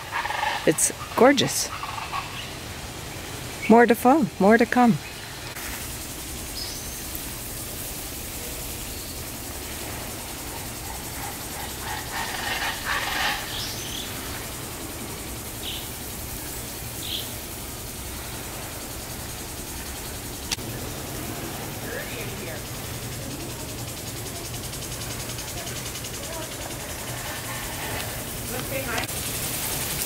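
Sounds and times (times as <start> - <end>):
birds chirping: 0.0 - 20.8
steady outdoor hiss: 0.0 - 30.0.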